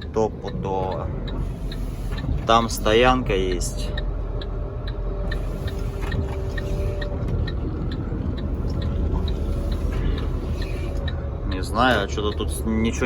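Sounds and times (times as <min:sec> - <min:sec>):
truck engine running low: 0:00.0 - 0:13.0
turn-signal relay ticking: 0:00.0 - 0:13.0.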